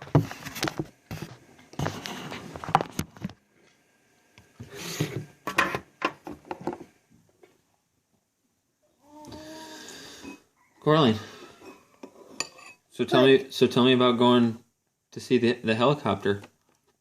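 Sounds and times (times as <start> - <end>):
rustling and scraping: 0.0 - 3.8, 4.6 - 7.6.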